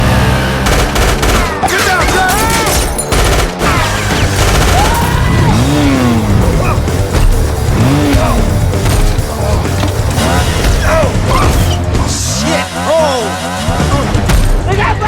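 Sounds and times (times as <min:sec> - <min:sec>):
driving film score: 0:00.0 - 0:15.0
gunfire bursts: 0:00.4 - 0:06.2.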